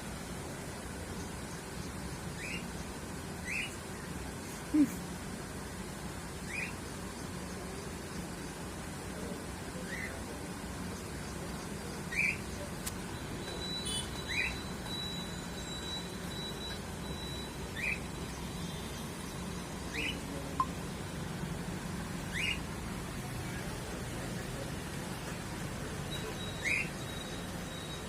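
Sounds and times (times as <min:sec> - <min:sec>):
steady low hum: 0:00.0 - 0:28.0
bird chirping: 0:01.1 - 0:04.2, 0:06.4 - 0:08.2, 0:10.9 - 0:21.0, 0:22.2 - 0:28.0
thin high tone: 0:12.6 - 0:21.0.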